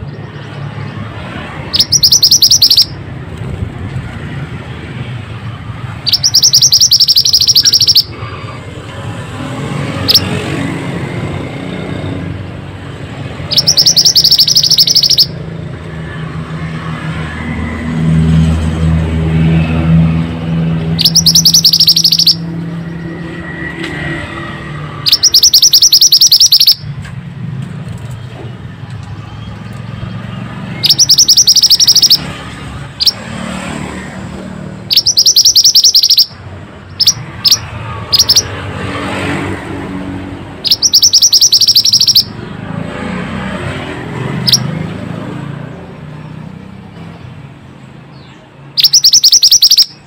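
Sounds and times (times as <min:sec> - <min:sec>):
bird chirping rapidly: 0:00.0 - 0:03.1, 0:05.7 - 0:08.3, 0:09.9 - 0:10.4, 0:13.1 - 0:15.4, 0:20.4 - 0:23.6, 0:24.9 - 0:26.9, 0:29.1 - 0:33.3, 0:34.7 - 0:38.6, 0:40.5 - 0:42.4, 0:44.3 - 0:44.8, 0:46.1 - 0:50.0.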